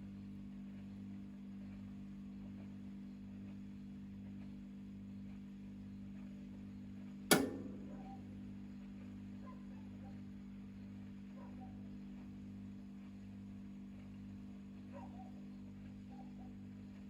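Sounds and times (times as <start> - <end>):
washing machine humming: 7.3 - 8.6.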